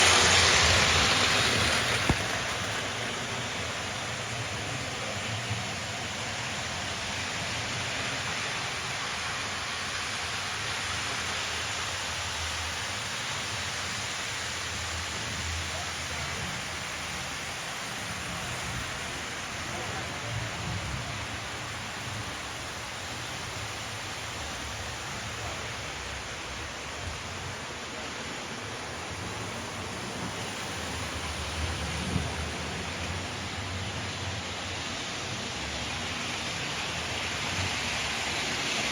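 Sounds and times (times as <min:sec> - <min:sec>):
model train wheels rolling on track: 0:00.0 - 0:38.9.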